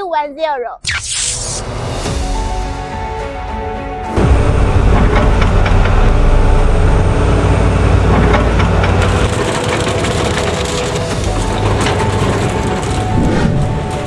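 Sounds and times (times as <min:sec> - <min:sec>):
excavator diesel engine rumbling: 0:04.5 - 0:14.0
sharp clanks and cracks: 0:08.0 - 0:14.0.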